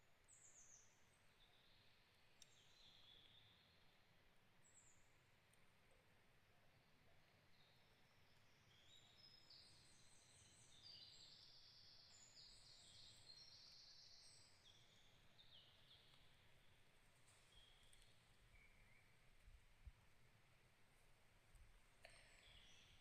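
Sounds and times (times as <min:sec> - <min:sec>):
high thin birdsong: 0:06.8 - 0:19.5, 0:22.0 - 0:23.0.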